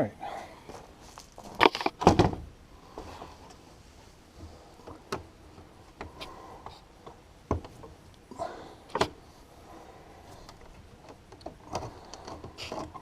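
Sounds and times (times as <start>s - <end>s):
parts clicking and knocking: 10.4s - 13.0s.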